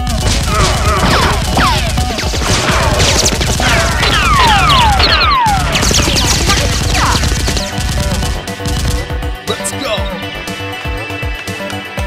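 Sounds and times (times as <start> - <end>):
rapid gunshots: 0.0 - 9.6.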